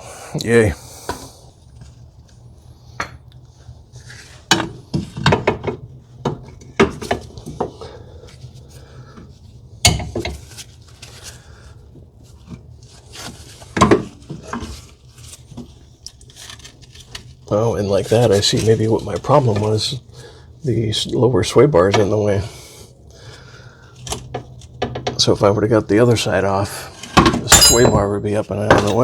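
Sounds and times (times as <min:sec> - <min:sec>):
metal parts clanking: 0:27.4 - 0:29.0.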